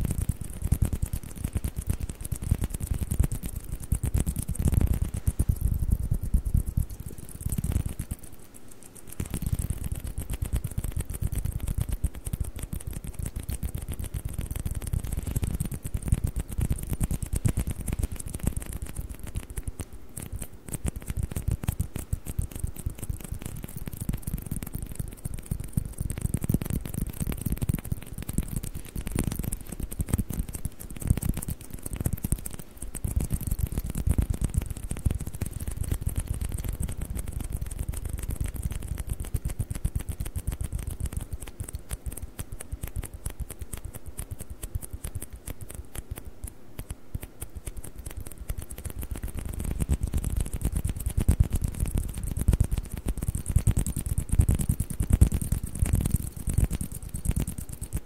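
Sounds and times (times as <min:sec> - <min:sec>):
soft low thumps: 0:00.0 - 0:08.3.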